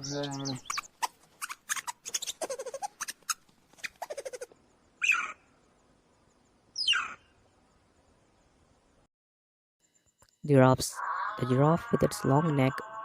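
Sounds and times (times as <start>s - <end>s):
small animal chirping: 0.0s - 5.4s, 6.8s - 7.2s.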